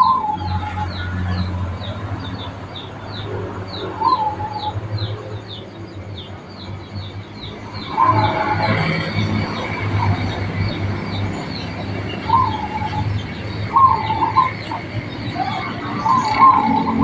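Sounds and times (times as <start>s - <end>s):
dove cooing: 0.0s - 2.0s, 3.2s - 5.2s, 7.8s - 10.9s, 11.6s - 17.0s
small birds chirping: 0.0s - 17.0s.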